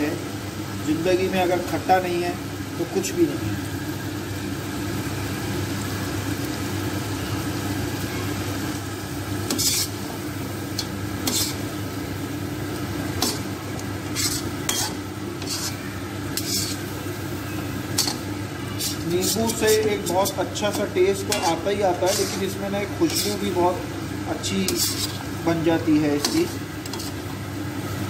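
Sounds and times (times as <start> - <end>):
food sizzling in a pan: 0.0 - 28.0
spatula scraping a pan: 9.4 - 10.1, 10.8 - 11.7, 13.2 - 17.0, 17.9 - 23.5, 24.5 - 25.3, 26.1 - 27.4.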